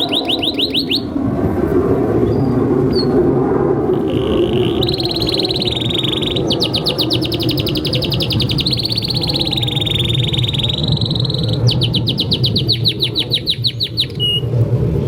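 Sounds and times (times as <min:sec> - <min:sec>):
canary singing trills: 0:00.0 - 0:01.2, 0:03.9 - 0:14.5
low background rumble: 0:00.0 - 0:15.0.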